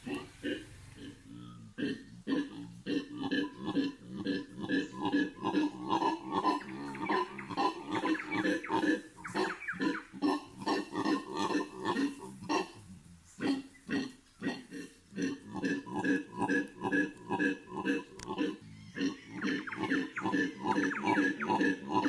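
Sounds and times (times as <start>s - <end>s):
howler monkeys howling: 0.0s - 22.0s.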